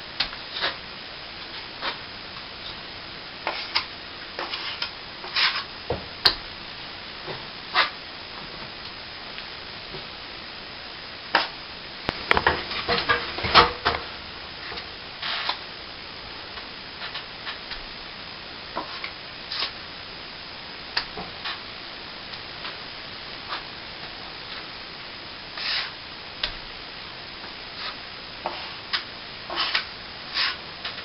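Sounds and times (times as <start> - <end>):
trowel scraping wet cement: 25.6 - 25.9, 29.5 - 30.6.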